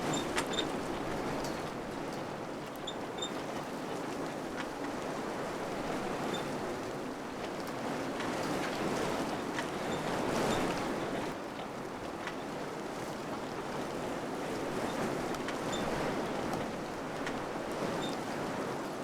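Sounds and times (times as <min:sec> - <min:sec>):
faint light ticks: 0:16.5 - 0:18.2.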